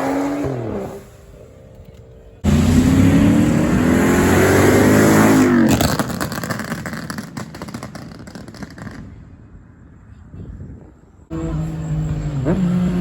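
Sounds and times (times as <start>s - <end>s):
car engine revving high: 2.4s - 6.3s, 11.3s - 13.0s
exhaust crackling: 2.4s - 8.9s.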